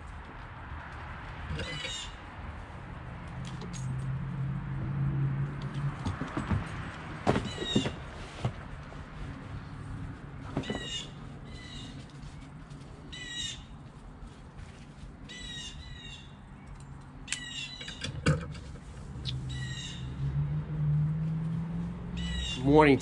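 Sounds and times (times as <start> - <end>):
harsh high bird calls: 1.6 - 2.2, 17.3 - 18.0, 19.2 - 20.2, 22.2 - 22.8.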